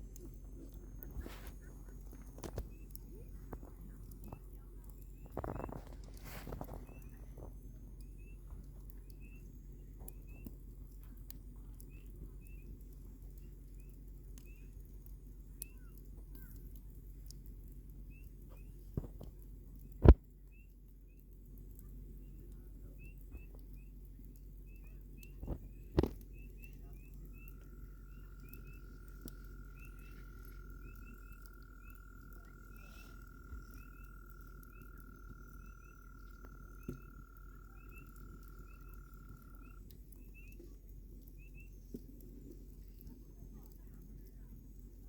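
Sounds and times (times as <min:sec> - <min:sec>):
campfire crackling: 0:00.0 - 0:45.0
fire pops and snaps: 0:00.0 - 0:45.0
long steady trill: 0:27.2 - 0:39.9.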